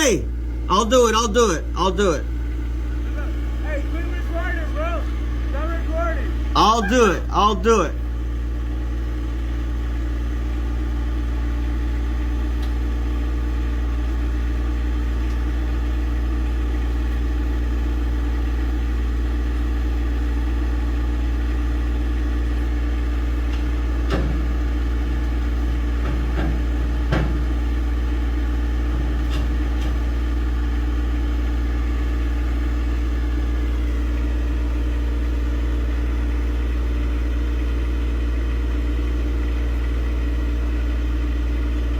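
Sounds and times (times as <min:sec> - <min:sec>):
tractor engine running: 0:00.0 - 0:41.9
sharp clunks: 0:23.5 - 0:24.5, 0:26.0 - 0:27.5.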